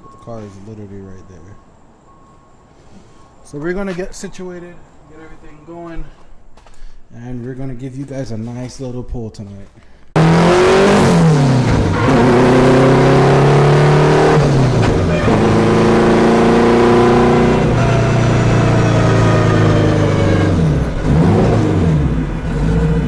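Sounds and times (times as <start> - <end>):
car engine at high revs: 10.2 - 23.0.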